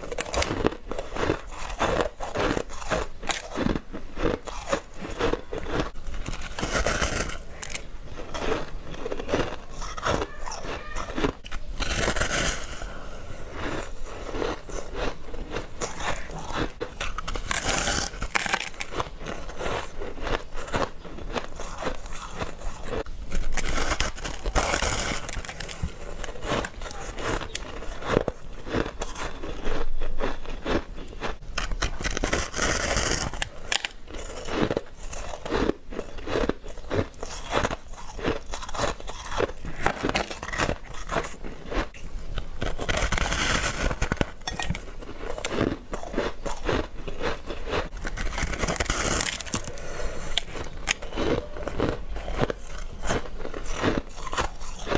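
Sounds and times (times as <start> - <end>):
teeth crunching ice: 0.0 - 54.9.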